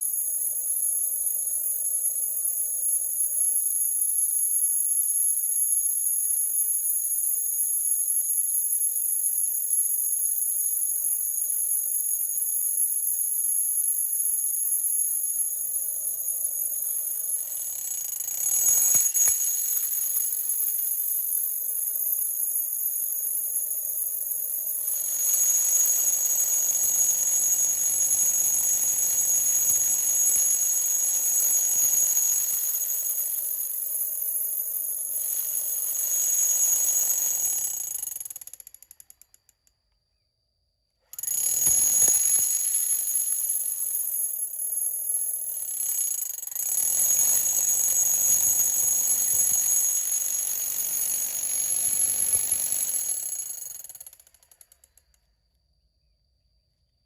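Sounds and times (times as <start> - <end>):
rotary hammer motor whining: 16.8 - 20.6, 24.7 - 33.8, 35.1 - 38.5, 41.2 - 43.7, 46.0 - 54.2.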